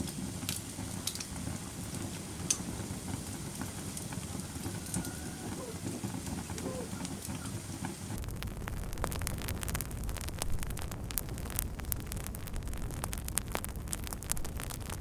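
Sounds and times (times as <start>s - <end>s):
wood fire crackling and popping: 0.0s - 15.0s
low rumble: 8.1s - 15.0s.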